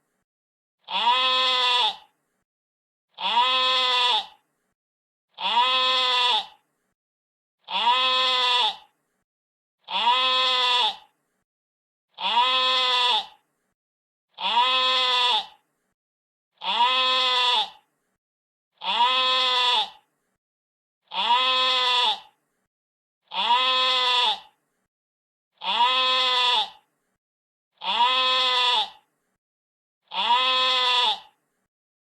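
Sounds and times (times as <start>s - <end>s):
sheep bleating: 0.9s - 2.1s, 3.2s - 4.4s, 5.4s - 6.6s, 7.7s - 8.9s, 9.9s - 11.1s, 12.2s - 13.4s, 14.4s - 15.6s, 16.6s - 17.8s, 18.8s - 20.0s, 21.1s - 22.3s, 23.3s - 24.5s, 25.6s - 26.8s, 27.8s - 29.0s, 30.1s - 31.4s.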